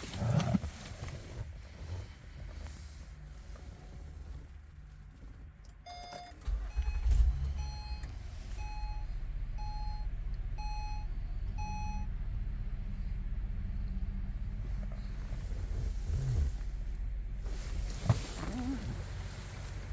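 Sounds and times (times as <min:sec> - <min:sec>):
car engine starting and idling: 0:00.0 - 0:19.9
dashboard warning chime beeps: 0:05.8 - 0:12.1.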